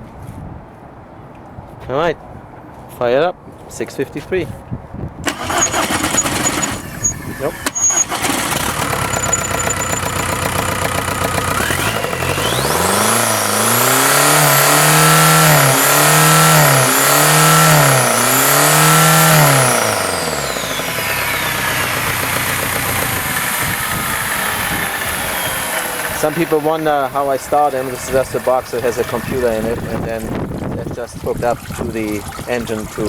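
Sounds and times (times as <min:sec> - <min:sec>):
diesel engine revving: 0:05.3 - 0:30.8
high turbo whine: 0:05.3 - 0:31.0.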